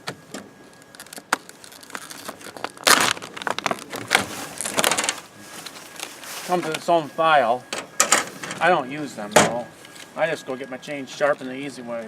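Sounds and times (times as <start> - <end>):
packaging crinkling and rustling: 0.6 - 7.1.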